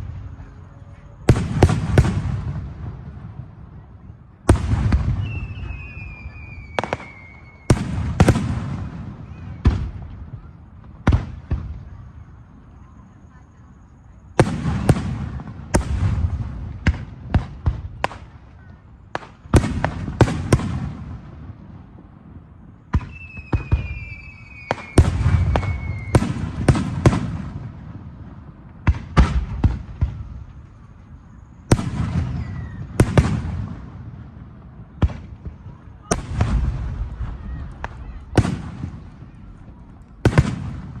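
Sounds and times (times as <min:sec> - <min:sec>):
fireworks bangs: 0:00.0 - 0:13.0, 0:14.3 - 0:41.0
whistling firework shell: 0:04.9 - 0:08.4, 0:09.1 - 0:10.5, 0:22.9 - 0:27.3, 0:29.2 - 0:33.5.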